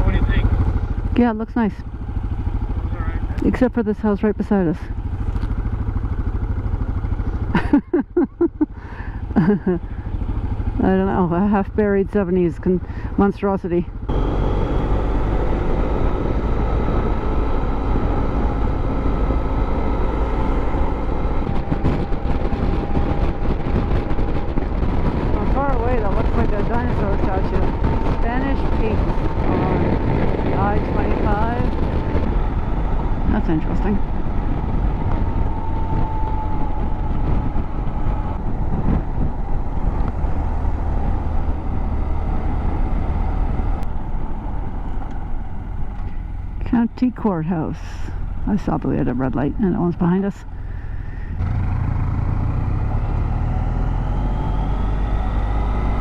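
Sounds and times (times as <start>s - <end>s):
motorcycle engine hum: 0.0s - 56.0s
wind rush on microphone: 14.1s - 56.0s.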